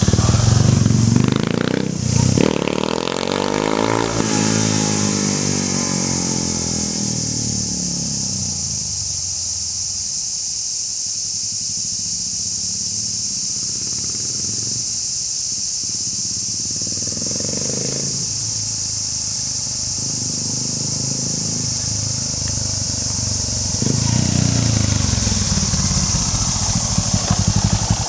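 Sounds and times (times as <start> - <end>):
motorcycle engine riding off: 0.0 - 9.9, 16.3 - 28.0
steady high hiss: 0.0 - 28.0.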